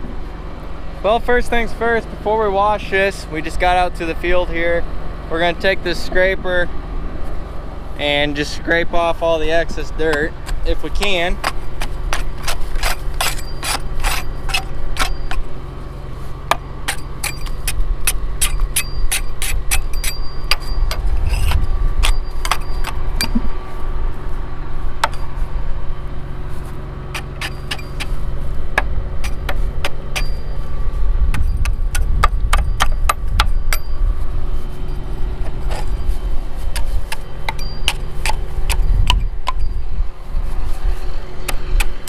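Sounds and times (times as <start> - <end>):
low engine hum: 0.0 - 42.0
scraper scraping and clanking on metal: 9.2 - 23.6, 26.4 - 33.9, 34.6 - 39.8.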